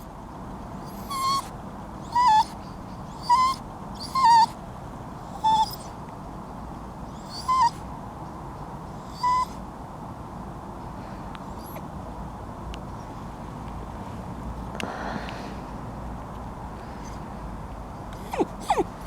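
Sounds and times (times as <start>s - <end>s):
dog whining: 0.8s - 4.6s, 5.3s - 6.0s, 7.2s - 7.8s, 9.1s - 9.6s, 11.6s - 11.8s, 18.2s - 19.0s.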